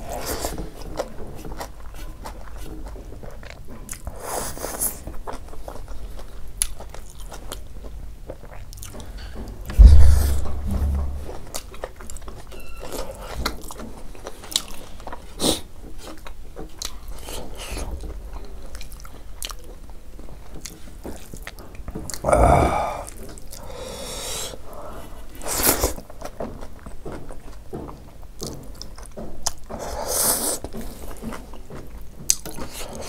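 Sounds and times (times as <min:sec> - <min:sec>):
person chewing wetly: 0:00.1 - 0:09.2, 0:18.4 - 0:23.8, 0:24.7 - 0:33.0
dull low thump: 0:09.7 - 0:11.6.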